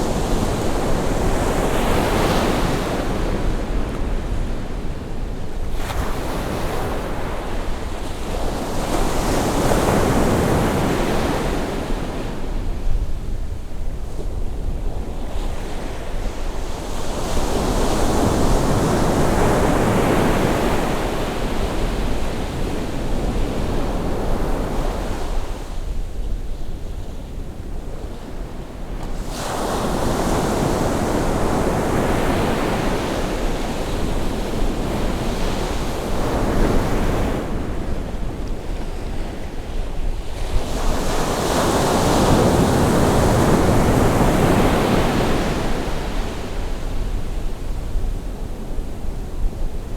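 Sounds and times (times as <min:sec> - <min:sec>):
waves breaking on shore: 0:29.1 - 0:47.3.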